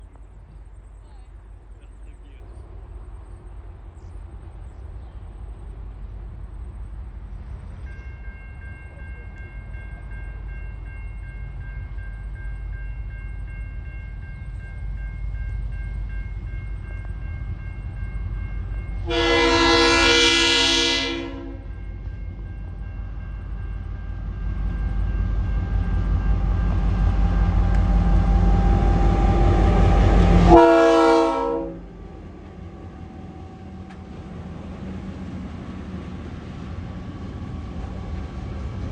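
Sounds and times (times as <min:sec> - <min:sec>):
diesel locomotive engine rumble: 0:00.0 - 0:38.9
level crossing warning bells: 0:06.7 - 0:38.9
train horn blasts: 0:19.0 - 0:21.8, 0:27.2 - 0:34.0.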